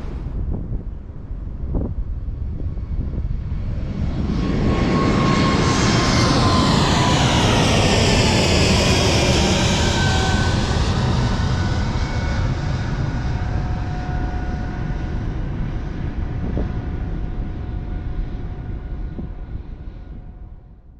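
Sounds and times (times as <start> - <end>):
jet engines roaring: 0.0 - 0.8, 3.9 - 16.0.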